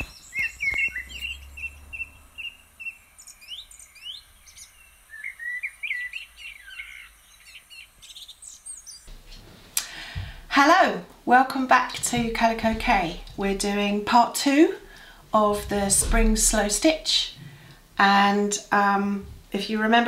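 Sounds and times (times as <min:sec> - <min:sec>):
bird whistling notes: 0:00.0 - 0:09.1
birds chirping: 0:00.0 - 0:10.4.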